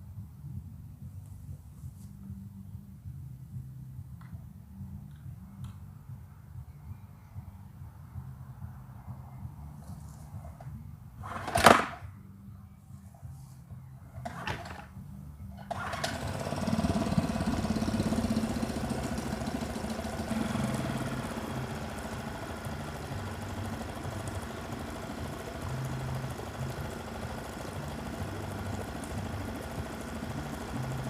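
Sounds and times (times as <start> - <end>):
starter cord pull: 14.2 - 14.9, 15.6 - 31.0
outboard motor running: 15.6 - 31.0.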